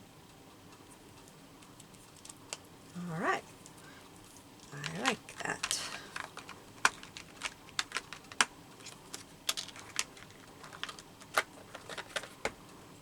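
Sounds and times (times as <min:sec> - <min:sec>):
pens clicking and tapping on table: 0:04.7 - 0:12.6.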